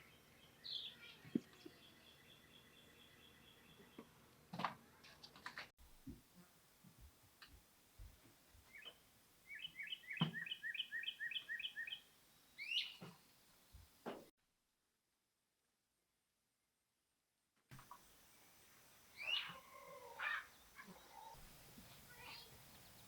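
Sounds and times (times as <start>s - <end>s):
birds chirping: 8.7s - 14.0s, 17.8s - 23.0s.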